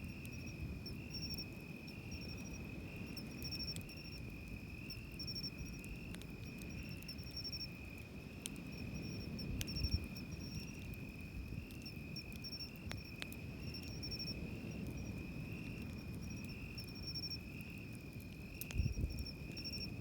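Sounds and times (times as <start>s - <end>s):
insect steady high trill: 0.0s - 4.2s, 4.8s - 5.8s, 6.8s - 7.8s, 18.9s - 20.0s
campfire crackling: 0.0s - 20.0s.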